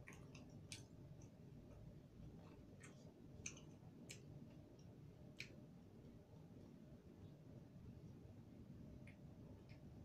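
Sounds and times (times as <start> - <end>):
mouth clicks from chewing: 2.8 - 4.3.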